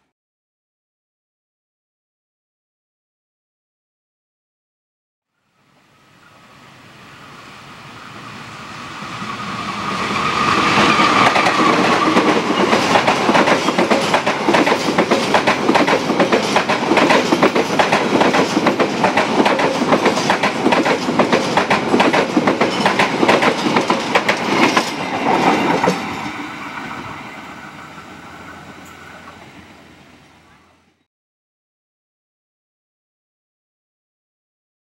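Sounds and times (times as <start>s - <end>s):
train rumble: 5.7s - 31.0s
wheels clacking over rail joints: 9.8s - 27.0s.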